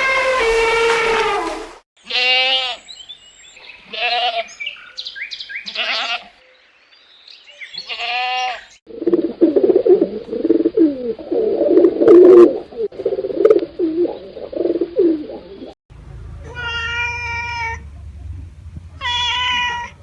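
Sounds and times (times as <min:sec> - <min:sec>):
elephant trumpeting: 0:00.0 - 0:02.3
goat bleating: 0:02.0 - 0:02.8, 0:03.8 - 0:04.6, 0:05.6 - 0:06.3, 0:07.8 - 0:08.7
dove cooing: 0:08.9 - 0:15.8.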